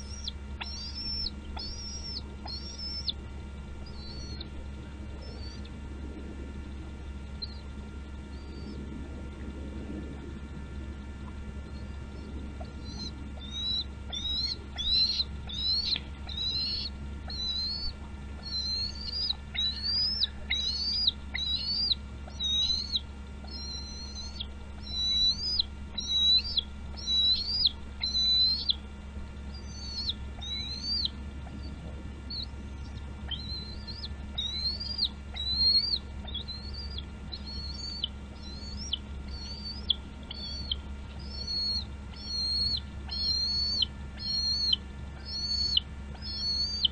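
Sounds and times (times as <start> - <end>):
bird chirping high thin chirps: 0.0 - 3.2, 3.8 - 4.4, 12.7 - 28.8, 29.5 - 31.2, 32.3 - 46.9.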